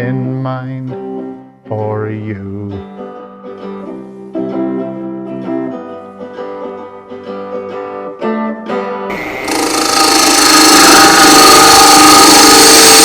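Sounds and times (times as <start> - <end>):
acoustic guitar strumming: 9.1 - 13.0
woodturning lathe running: 9.1 - 13.0.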